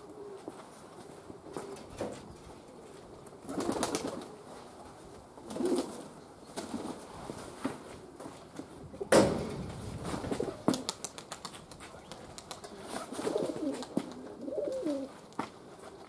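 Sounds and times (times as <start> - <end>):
pigeons cooing: 12.0 - 15.9.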